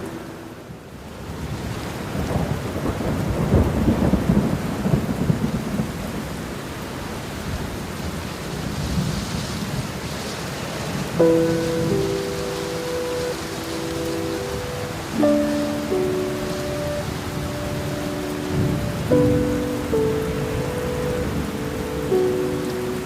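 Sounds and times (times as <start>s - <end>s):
soft musical notes: 0.0s - 0.9s, 11.2s - 23.0s
steady rain: 0.0s - 23.0s
rolling thunder: 1.2s - 6.4s, 10.9s - 23.0s.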